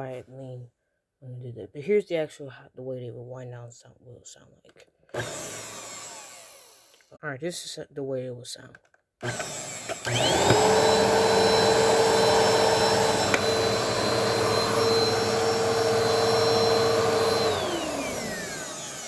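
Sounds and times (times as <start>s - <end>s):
vacuum cleaner motor whine: 5.2s - 7.0s, 9.2s - 19.0s.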